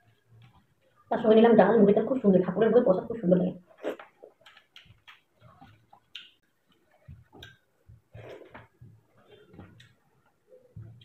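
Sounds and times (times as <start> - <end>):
faint chewing with mouth clicks: 0.0 - 1.1, 3.7 - 11.0.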